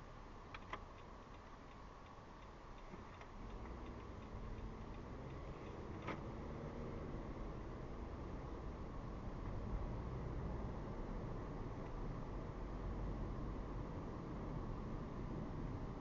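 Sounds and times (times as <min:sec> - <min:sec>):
engine and road rumble: 0:00.0 - 0:16.0
turn signal ticking: 0:00.4 - 0:06.7.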